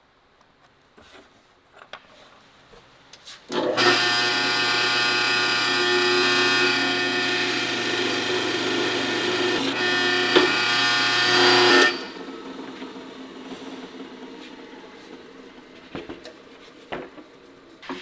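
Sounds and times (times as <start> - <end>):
woodworking machine whining: 3.5 - 18.0.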